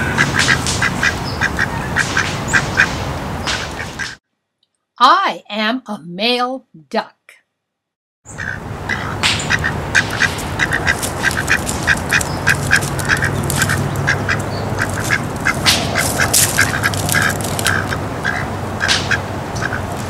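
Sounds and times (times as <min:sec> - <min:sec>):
ducks quacking: 0:00.0 - 0:04.2, 0:08.3 - 0:20.0
outdoor background hiss: 0:08.3 - 0:20.0.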